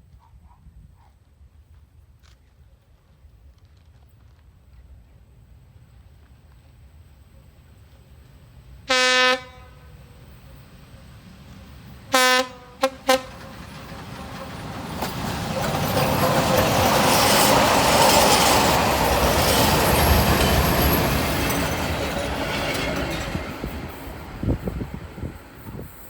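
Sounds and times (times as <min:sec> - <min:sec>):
train passing: 0:04.5 - 0:26.0
train horn: 0:08.9 - 0:10.0, 0:12.1 - 0:13.6.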